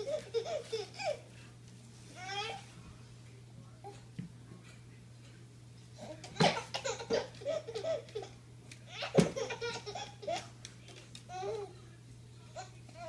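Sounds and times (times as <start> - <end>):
baby giggling: 0.0 - 1.3, 6.3 - 10.5.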